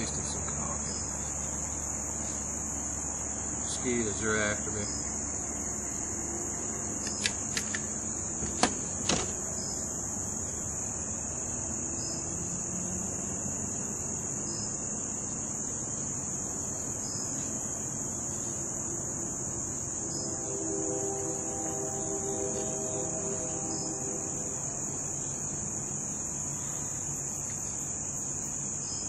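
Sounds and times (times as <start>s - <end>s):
crickets chirping: 0.0s - 29.0s
sharp clicks: 7.0s - 7.9s.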